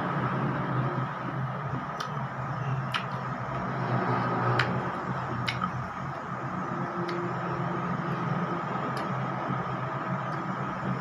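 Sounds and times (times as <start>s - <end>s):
low background hum: 0.0s - 11.0s
mouth clicks and smacks eating: 1.9s - 2.2s, 2.8s - 3.3s, 4.6s - 6.0s.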